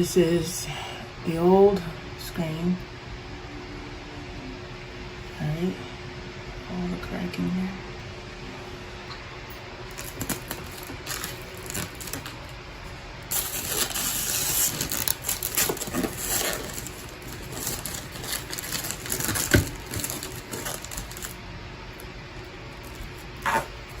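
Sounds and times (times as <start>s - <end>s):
plastic rustling and scraping: 9.9s - 12.5s, 13.3s - 21.4s.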